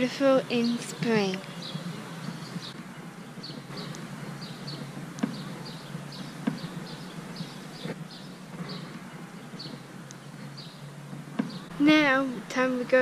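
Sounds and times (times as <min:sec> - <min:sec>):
small birds chirping: 0:00.0 - 0:13.0
sharp taps: 0:02.2 - 0:11.7.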